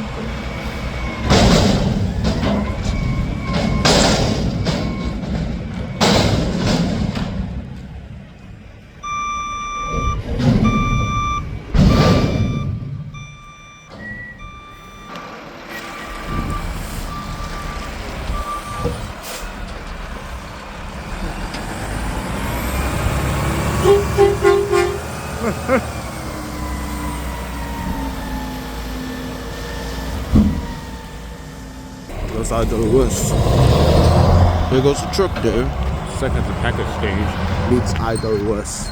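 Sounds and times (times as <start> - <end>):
reversing beeper: 0.0 - 6.4, 9.0 - 19.1, 21.8 - 38.9
truck engine running: 10.2 - 38.9.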